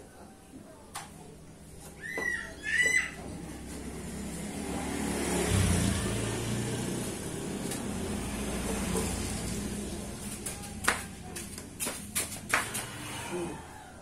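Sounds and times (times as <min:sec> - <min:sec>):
vehicle engine running: 0:03.3 - 0:11.8.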